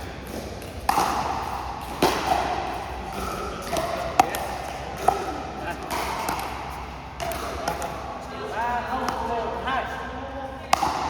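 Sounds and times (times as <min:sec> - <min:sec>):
paddles hitting plastic ball: 0:00.0 - 0:08.0, 0:10.7 - 0:11.0.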